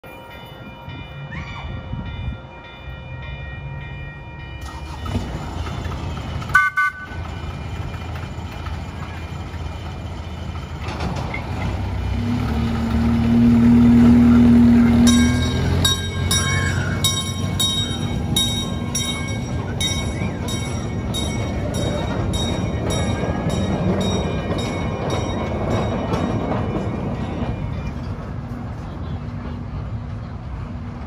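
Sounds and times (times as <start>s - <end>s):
ride-on train rumbling: 0.0s - 31.0s
ringing strikes: 15.0s - 27.5s.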